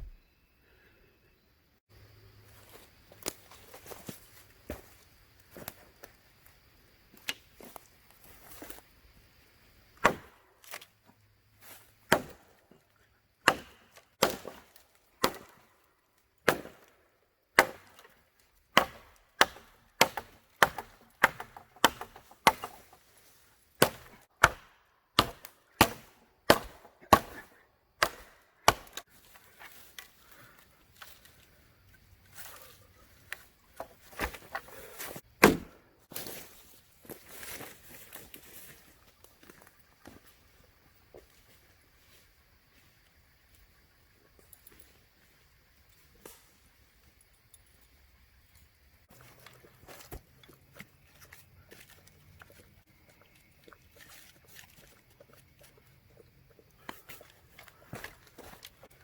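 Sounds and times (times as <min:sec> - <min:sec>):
firewood chopping strikes: 0:10.0 - 0:10.8, 0:12.0 - 0:12.5, 0:13.4 - 0:15.7, 0:16.4 - 0:16.9, 0:17.6 - 0:23.0, 0:23.8 - 0:29.0, 0:33.8 - 0:36.3.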